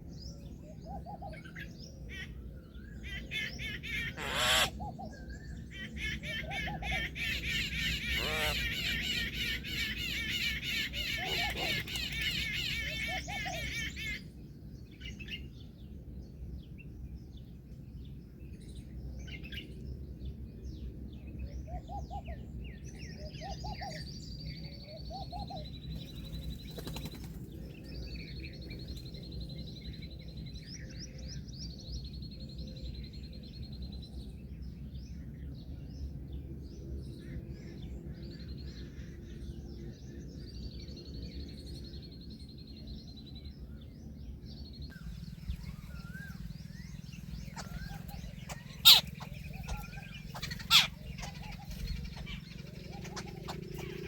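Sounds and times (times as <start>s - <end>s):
steady low background noise: 0.0s - 54.0s
birds chirping: 3.1s - 5.7s, 6.4s - 14.3s, 23.6s - 33.1s, 36.8s - 54.0s
short low bird calls: 3.8s - 5.0s, 44.9s - 54.0s
long high bird whistles: 45.5s - 54.0s.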